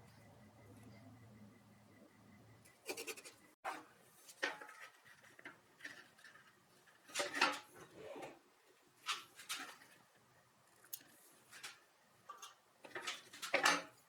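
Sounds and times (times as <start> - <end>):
faint low hum: 0.0 - 3.6.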